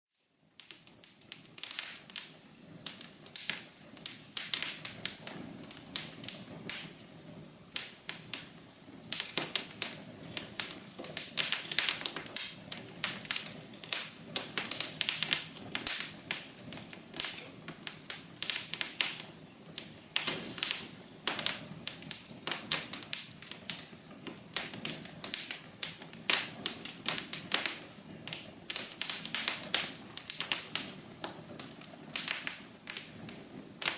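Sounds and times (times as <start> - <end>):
wood fire crackling: 0.1 - 33.9.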